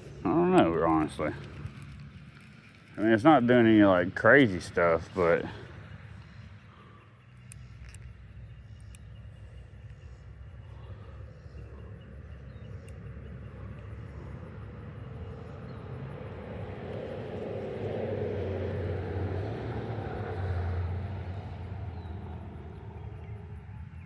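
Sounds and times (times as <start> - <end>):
vehicle passing by: 13.1 - 24.0.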